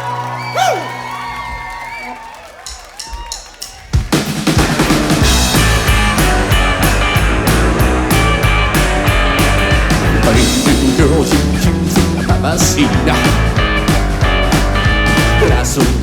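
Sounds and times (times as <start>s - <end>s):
drum beat: 2.6s - 16.0s
rock band playing: 2.7s - 16.0s
bass line: 4.4s - 16.0s
electric guitar: 4.7s - 16.0s.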